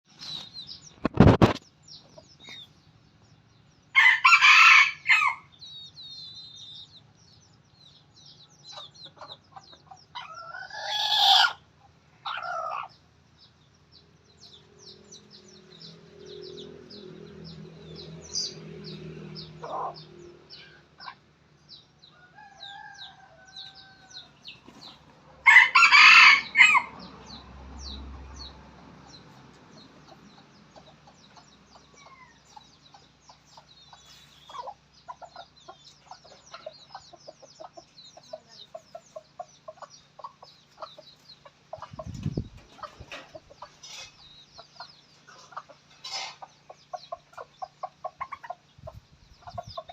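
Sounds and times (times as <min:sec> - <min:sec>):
rooster crowing: 0:04.0 - 0:05.5, 0:22.1 - 0:24.4, 0:25.4 - 0:27.0.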